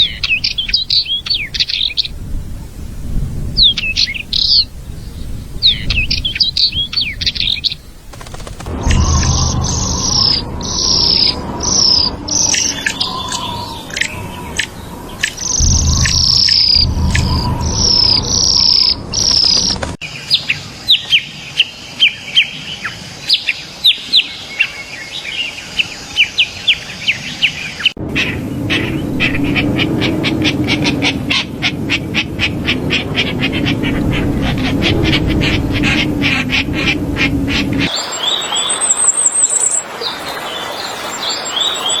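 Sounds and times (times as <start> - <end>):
bird whistled falling notes: 8.2 - 19.8.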